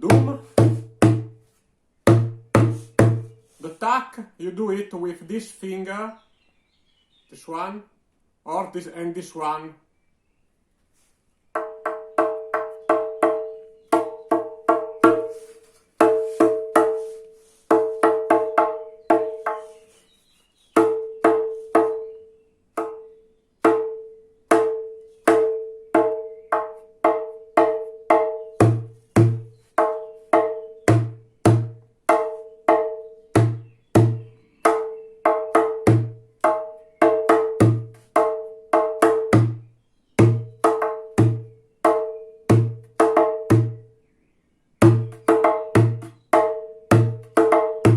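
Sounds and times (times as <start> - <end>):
djembe hand drum pattern: 0.0 - 1.4, 2.1 - 3.4, 11.6 - 19.8, 20.8 - 22.2, 22.8 - 43.9, 44.8 - 47.9.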